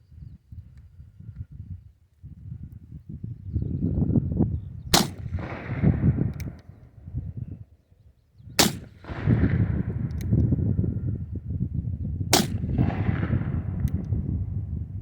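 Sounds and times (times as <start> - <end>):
revolver shots with echo: 5.0 - 6.3, 8.6 - 10.1, 12.4 - 14.1
low rumble: 8.8 - 15.0.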